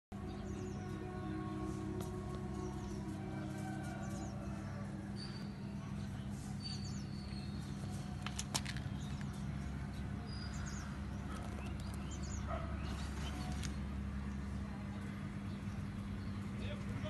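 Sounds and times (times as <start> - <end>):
steady low hum: 0.1 - 17.0
small birds chirping: 5.2 - 17.0.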